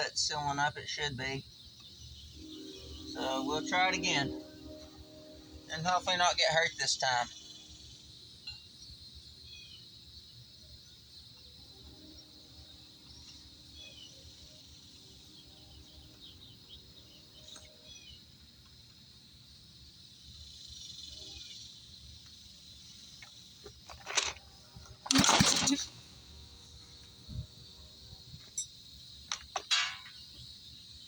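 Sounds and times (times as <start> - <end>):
faint bird chirps: 0.0 - 18.4
insect drone: 0.0 - 31.0.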